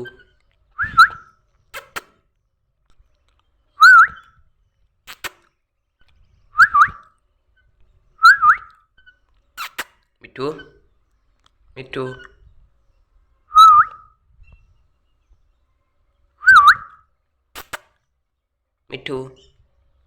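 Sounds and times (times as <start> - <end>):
parrot whistling calls: 0.8 - 2.0, 3.8 - 4.3, 6.6 - 7.0, 8.2 - 8.7, 13.5 - 14.1, 16.4 - 17.0
sharp clicks: 17.6 - 18.0.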